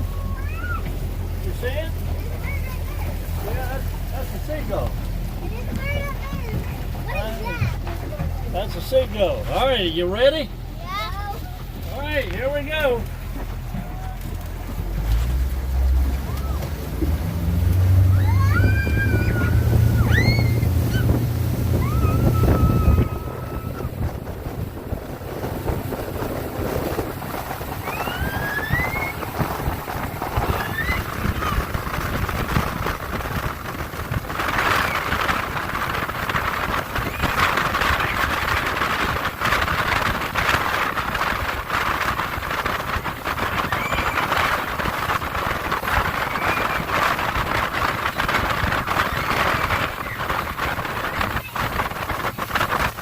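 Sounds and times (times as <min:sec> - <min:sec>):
motorboat engine rumble: 0:00.0 - 0:53.0
wind and water on microphone: 0:00.0 - 0:53.0
high squeal rising in pitch: 0:17.9 - 0:24.1, 0:27.8 - 0:29.3.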